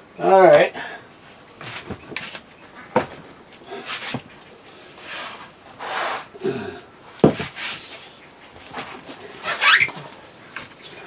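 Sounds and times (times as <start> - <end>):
handling knocks and clatters: 1.6 - 4.6
rustling: 7.2 - 11.0.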